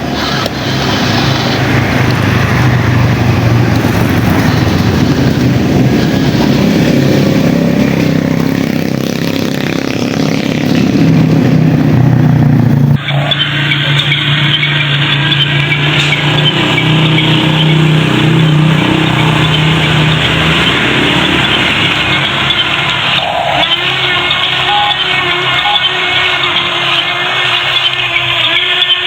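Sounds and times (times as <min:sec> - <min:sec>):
model motors humming: 0:11.5 - 0:29.0.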